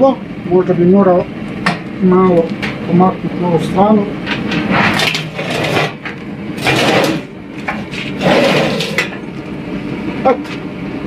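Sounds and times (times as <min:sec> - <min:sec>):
heater scraping over ground: 0:03.6 - 0:09.9.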